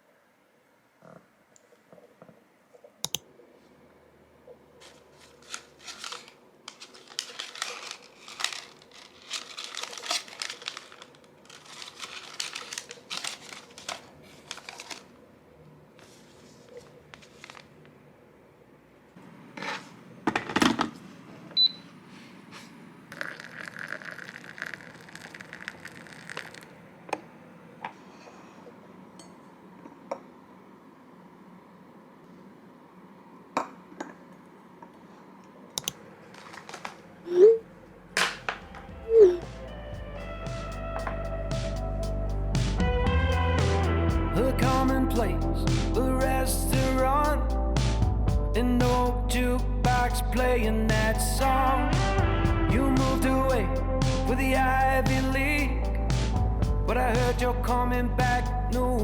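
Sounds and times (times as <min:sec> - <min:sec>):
crinkling and rustling: 0:04.8 - 0:15.2, 0:15.9 - 0:18.0, 0:22.2 - 0:26.7, 0:36.2 - 0:37.3.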